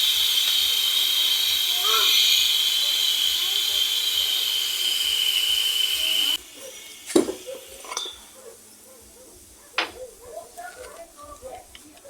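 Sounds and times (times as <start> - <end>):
steam hissing from pot: 0.0 - 10.2
pot lid clink: 6.2 - 8.4.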